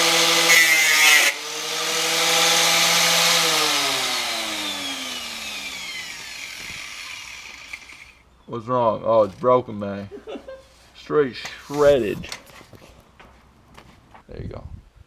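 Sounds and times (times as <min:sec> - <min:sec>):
angle grinder cutting metal: 0:00.0 - 0:08.2
angle grinder running free: 0:00.0 - 0:08.2
motor winding down: 0:01.2 - 0:08.2.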